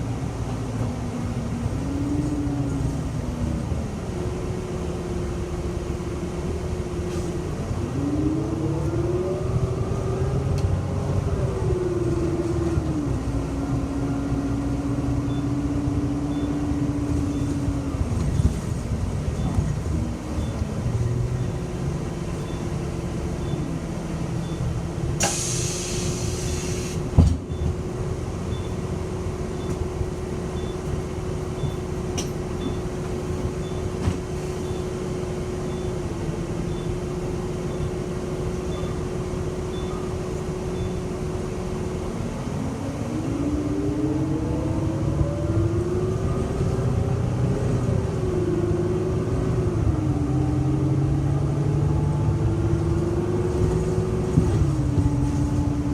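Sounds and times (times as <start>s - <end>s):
bus engine running: 0.0s - 55.9s
air hiss: 25.2s - 27.0s.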